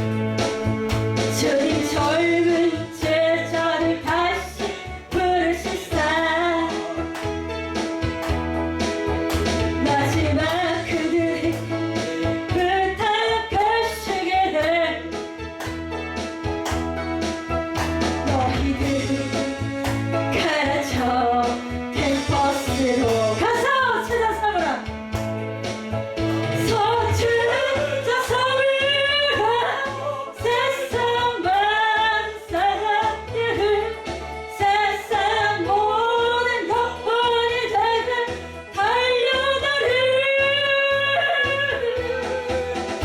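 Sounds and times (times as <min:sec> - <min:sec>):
backing track with steady beat: 0:00.0 - 0:43.0
woman singing: 0:01.3 - 0:07.2, 0:09.8 - 0:15.2, 0:18.2 - 0:24.9, 0:26.6 - 0:43.0
person singing: 0:18.2 - 0:19.8, 0:26.6 - 0:33.2.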